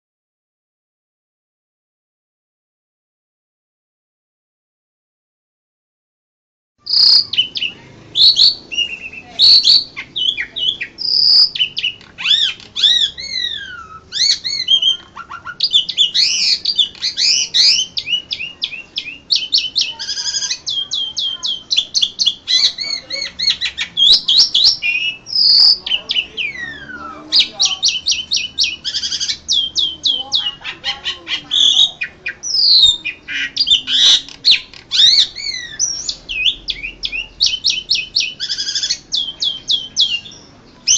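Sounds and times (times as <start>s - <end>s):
starling singing whistled song: 6.8s - 40.9s.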